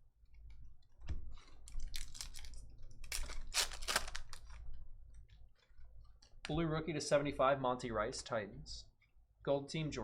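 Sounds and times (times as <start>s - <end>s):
cards and packaging rustling: 1.3s - 4.7s.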